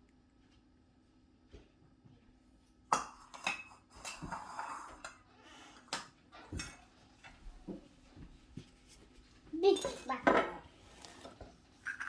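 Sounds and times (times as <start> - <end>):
dishes and utensils clinking: 2.9 - 7.4, 9.6 - 12.0.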